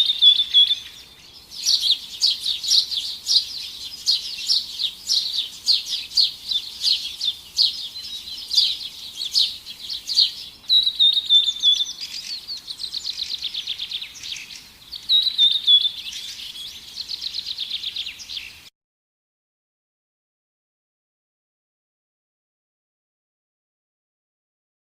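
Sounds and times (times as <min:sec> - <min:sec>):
sharp repeated bird chirps: 0:00.0 - 0:18.7
songbirds chirping and singing: 0:00.0 - 0:18.7.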